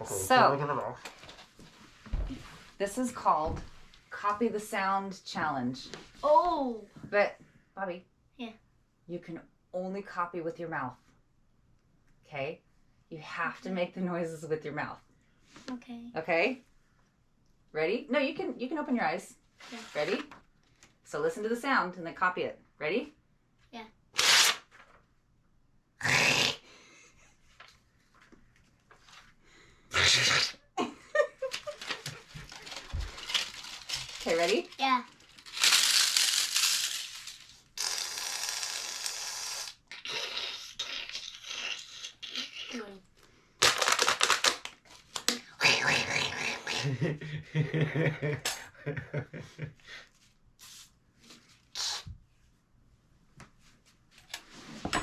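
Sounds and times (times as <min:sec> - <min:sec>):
sneeze-like bursts: 0:26.0 - 0:26.6, 0:29.9 - 0:30.6.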